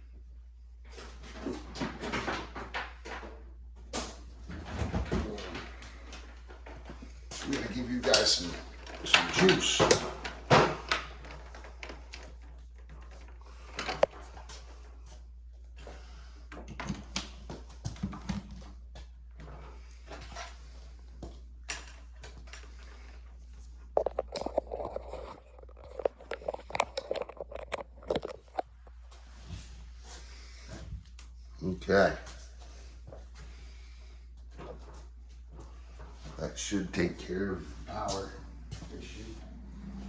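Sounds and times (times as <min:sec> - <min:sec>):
steady low hum: 0:18.8 - 0:40.0
equipment handling clicks and rustles: 0:24.0 - 0:29.0.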